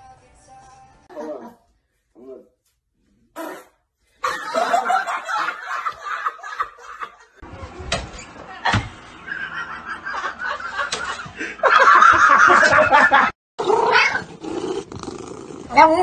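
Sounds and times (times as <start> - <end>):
people laughing: 4.2 - 7.7, 8.6 - 13.3.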